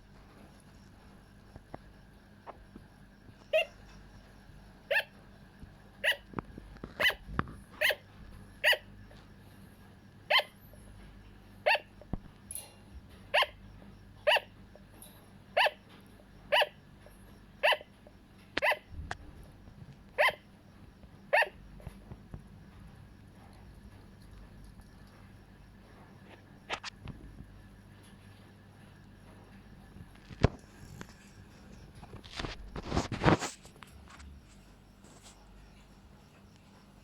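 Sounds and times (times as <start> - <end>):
sugar glider barking: 3.4 - 9.2, 10.2 - 12.2, 13.1 - 19.5, 20.1 - 20.6, 21.2 - 22.0.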